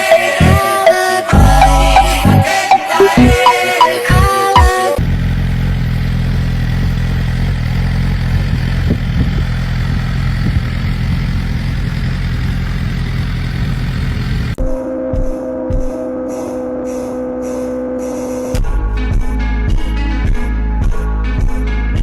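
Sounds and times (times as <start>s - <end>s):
motorcycle engine idling: 5.0s - 14.6s.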